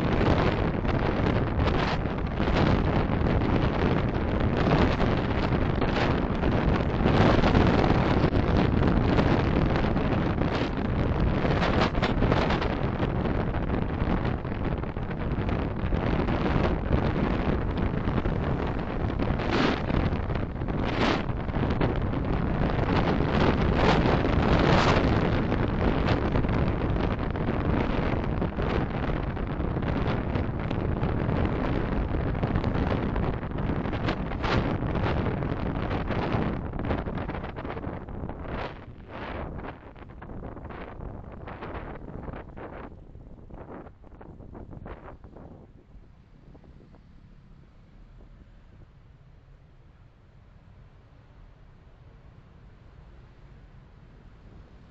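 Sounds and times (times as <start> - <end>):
car road noise: 0.0 - 54.9
wind noise: 0.0 - 54.9
passing traffic: 44.5 - 54.9.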